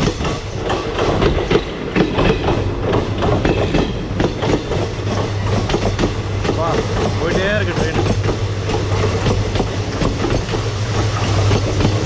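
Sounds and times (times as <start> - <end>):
low train rumble: 0.0 - 12.0
train wheels clattering over rail joints: 0.0 - 12.0.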